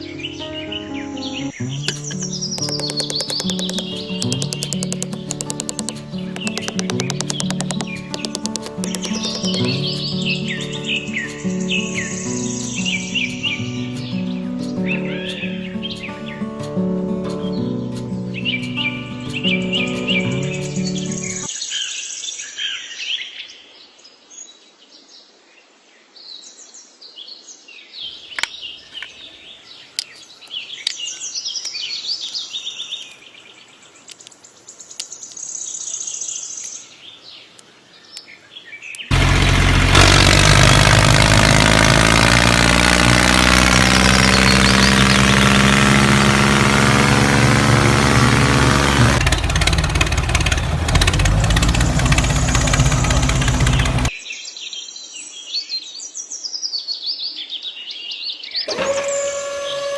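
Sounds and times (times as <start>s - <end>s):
birds chirping: 0.0s - 16.5s, 17.4s - 21.5s, 28.0s - 54.2s
loud engine-like drone: 1.6s - 10.8s, 39.1s - 54.1s.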